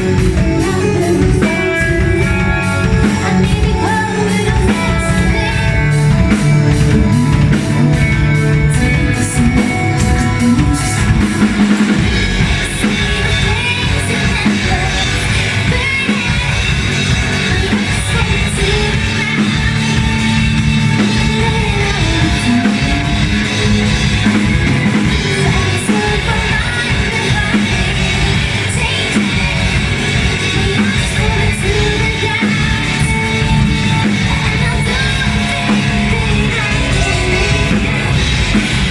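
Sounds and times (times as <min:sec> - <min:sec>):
person singing: 0:00.0 - 0:23.8, 0:25.0 - 0:38.2
rock band playing: 0:00.0 - 0:38.9.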